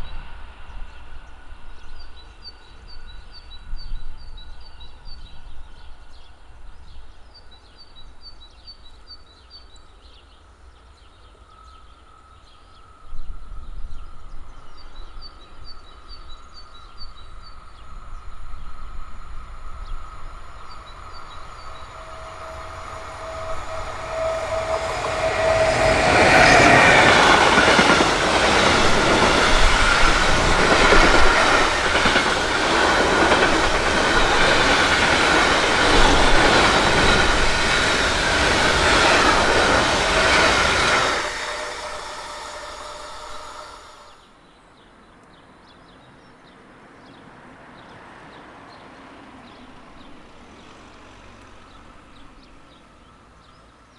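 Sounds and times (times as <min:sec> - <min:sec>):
approaching train whine: 0:00.0 - 0:09.1, 0:12.0 - 0:44.4
birds chirping: 0:19.8 - 0:47.2
train wheel clatter: 0:21.2 - 0:44.2.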